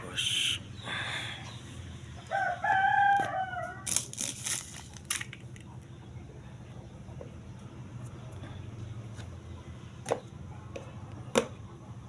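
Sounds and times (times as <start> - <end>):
rooster crowing: 2.2 - 4.0.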